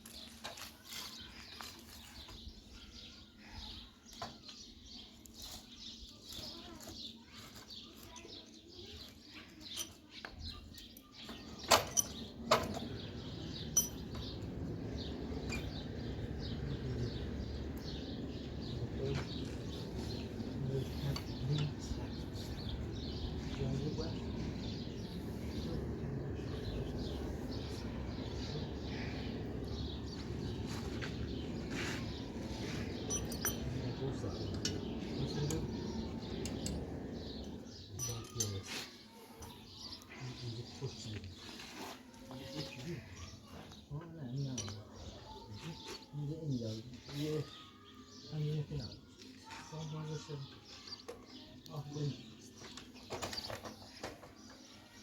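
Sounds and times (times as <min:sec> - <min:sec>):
small birds chirping: 0:00.0 - 0:55.0
sharp clinks: 0:10.8 - 0:13.0, 0:13.6 - 0:14.5, 0:33.0 - 0:38.7
low rumbling: 0:11.9 - 0:38.1.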